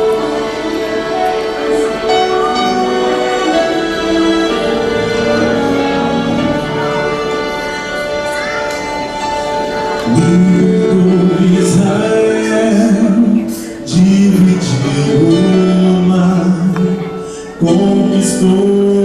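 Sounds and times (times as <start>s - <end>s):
vocal quartet singing in harmony: 0.0s - 7.3s, 10.0s - 19.0s
instrumental accompaniment: 0.0s - 19.0s.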